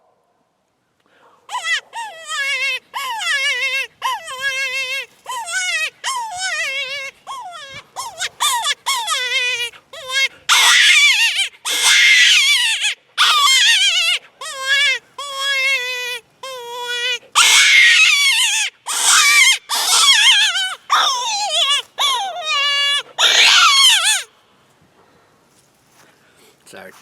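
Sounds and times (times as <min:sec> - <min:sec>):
predator call crying squeals: 0:01.5 - 0:24.3.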